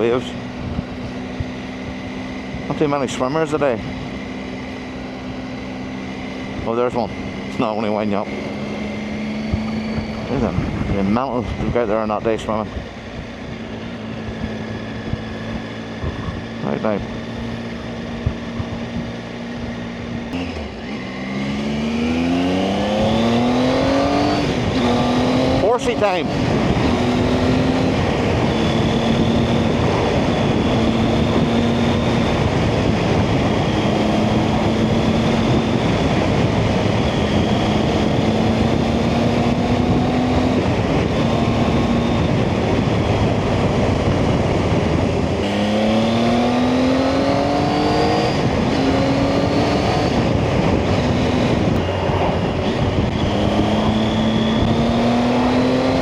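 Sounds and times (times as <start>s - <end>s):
motorcycle engine accelerating: 0.0s - 56.0s
wind rush on microphone: 0.0s - 56.0s.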